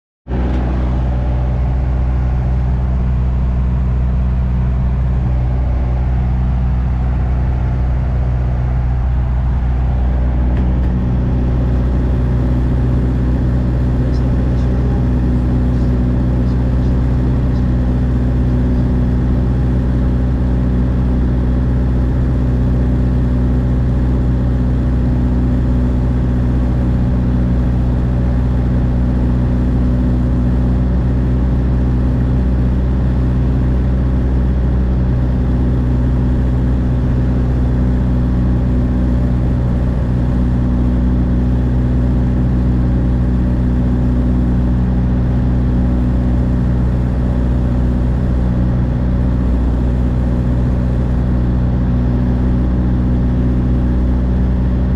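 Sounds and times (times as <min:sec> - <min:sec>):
light aircraft engine droning: 0:00.3 - 0:54.9.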